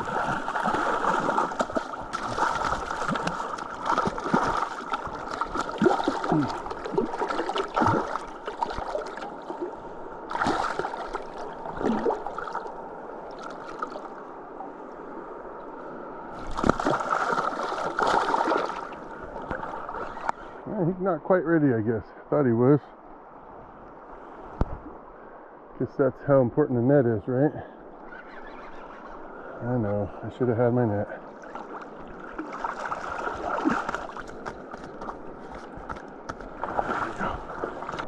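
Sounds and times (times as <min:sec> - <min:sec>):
fish splashing in water: 0:00.0 - 0:09.6, 0:10.3 - 0:12.7, 0:16.4 - 0:20.0
river water gurgling: 0:00.0 - 0:15.0, 0:16.2 - 0:21.0, 0:30.6 - 0:38.0.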